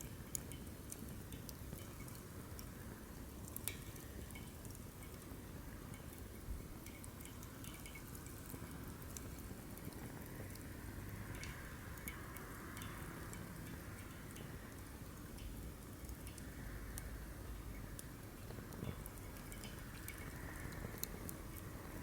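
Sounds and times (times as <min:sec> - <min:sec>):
firewood crackling and popping: 0:00.0 - 0:17.1, 0:17.7 - 0:22.0
low flame hiss: 0:00.0 - 0:22.0.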